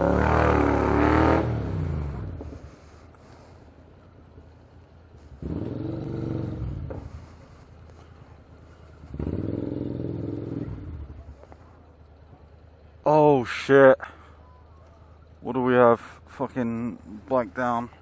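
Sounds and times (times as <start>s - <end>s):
motorcycle engine accelerating: 0.0s - 3.0s, 5.1s - 11.8s.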